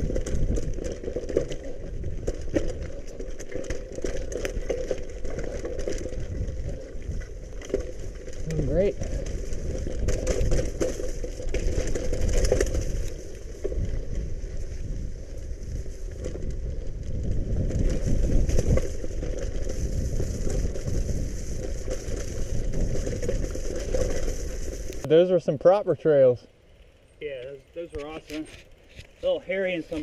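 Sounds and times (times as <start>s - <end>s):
bicycle clicks and rattles: 0.0s - 25.1s
wind rumble on microphone: 0.0s - 25.1s
bicycle tyres crunching gravel: 0.0s - 30.0s.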